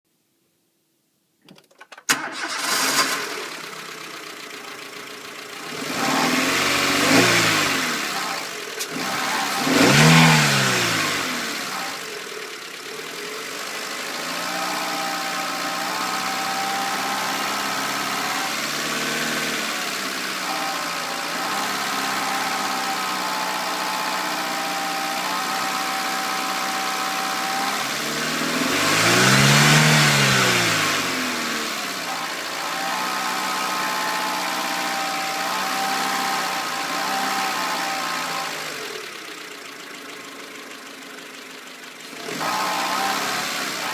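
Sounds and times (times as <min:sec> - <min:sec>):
rattle: 0:01.4 - 0:02.2
engine revving: 0:02.1 - 0:40.8, 0:41.9 - 0:43.9
car engine idling with whine: 0:02.4 - 0:43.9.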